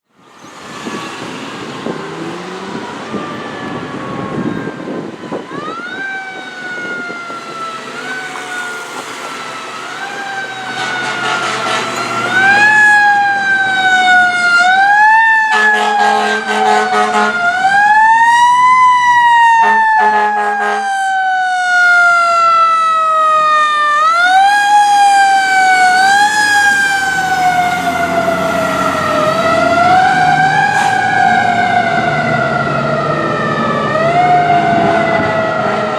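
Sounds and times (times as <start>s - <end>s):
sirens wailing: 0.0s - 35.9s
horn blasts: 10.6s - 12.8s, 15.5s - 17.5s, 19.6s - 21.0s.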